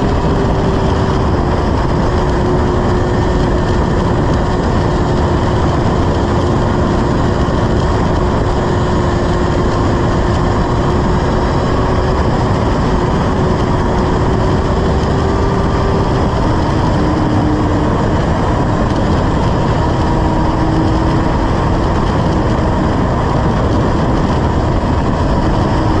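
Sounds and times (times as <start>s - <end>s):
motorcycle engine: 0.0s - 26.0s
wind rushing over microphone: 0.0s - 26.0s.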